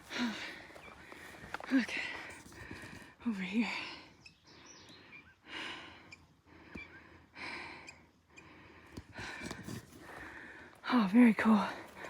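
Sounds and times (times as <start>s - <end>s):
person breathing hard: 0.0s - 3.2s, 4.6s - 10.8s.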